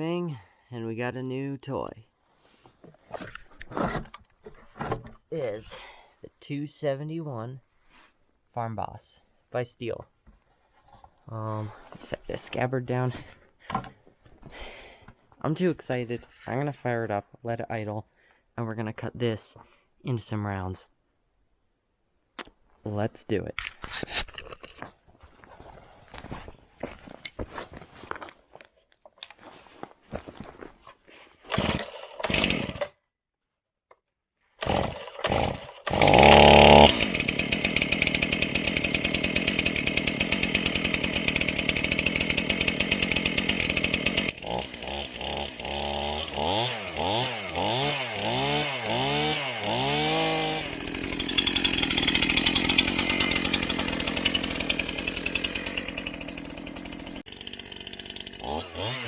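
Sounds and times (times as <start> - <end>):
chainsaw idling and revving: 31.5 - 32.9, 34.6 - 59.0
starter cord pulls: 31.5 - 32.9, 34.6 - 47.4.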